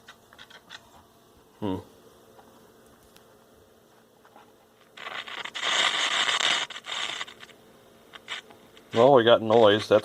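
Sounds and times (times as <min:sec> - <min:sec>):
radio static hiss: 0:03.9 - 0:10.0.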